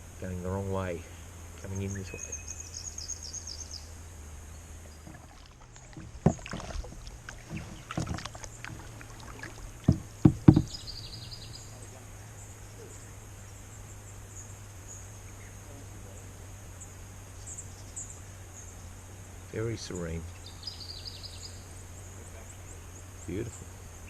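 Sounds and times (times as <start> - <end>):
faint high insect chirping: 0.0 - 24.0
kayak paddle splashes: 4.7 - 12.2.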